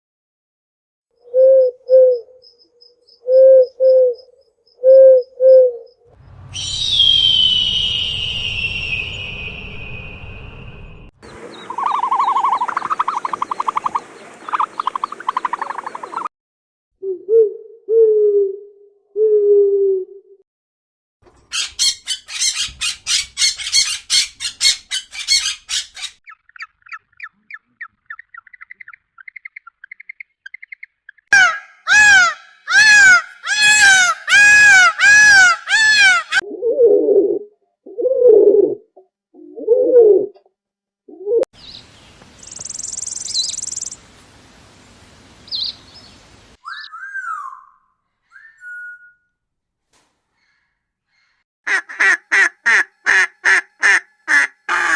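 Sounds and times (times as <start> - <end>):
bird cooing: 1.2 - 2.4, 3.2 - 5.9, 11.5 - 16.3, 17.0 - 20.4, 36.4 - 40.4
owl pulsing trill: 1.2 - 6.0, 6.6 - 16.3
owl low hoots: 1.3 - 2.4, 3.2 - 5.9
bird calls rising and falling: 4.9 - 16.3, 21.5 - 36.4, 41.6 - 44.1, 44.8 - 49.2.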